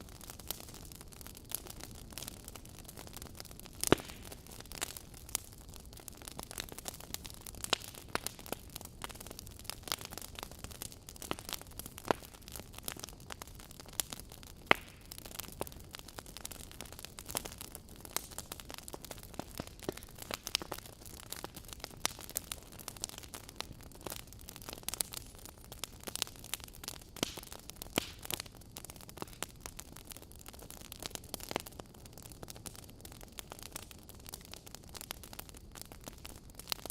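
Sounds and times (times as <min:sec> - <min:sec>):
wood fire crackling: 0:00.0 - 0:36.9.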